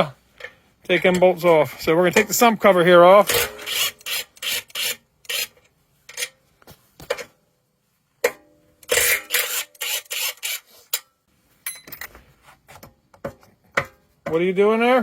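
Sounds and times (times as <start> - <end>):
ratchet wrench rasping: 3.3 - 5.6, 8.9 - 10.7.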